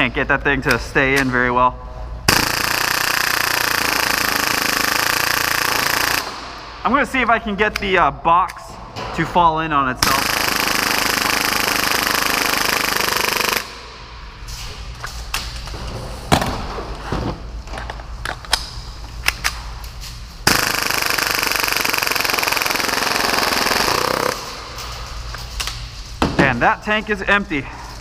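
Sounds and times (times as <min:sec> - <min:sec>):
airsoft pistol firing bursts: 0:02.3 - 0:06.5, 0:10.0 - 0:13.8, 0:20.5 - 0:24.5.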